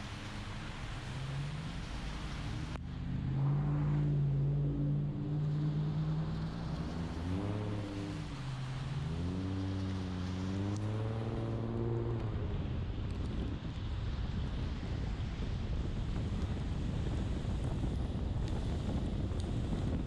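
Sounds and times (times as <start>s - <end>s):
car engine accelerating: 0.0s - 14.8s
rain: 0.0s - 20.0s.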